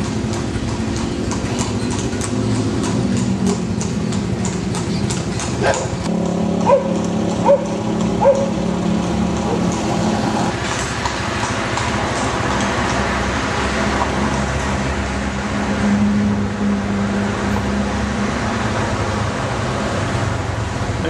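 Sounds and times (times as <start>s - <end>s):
motorbike engine running: 0.0s - 12.7s
road and wind noise: 0.0s - 21.0s.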